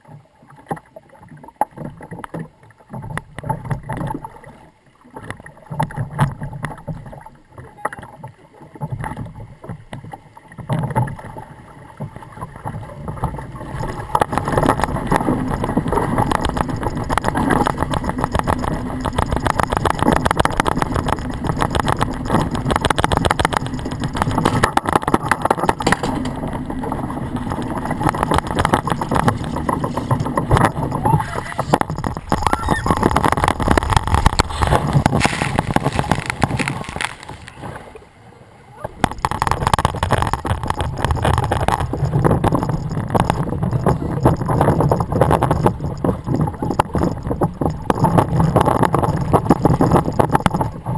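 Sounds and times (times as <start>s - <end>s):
water noise: 0.0s - 50.9s
wind noise: 12.0s - 37.9s, 38.8s - 50.9s
rushing noise with rapid rattling: 13.7s - 37.6s, 39.0s - 50.9s.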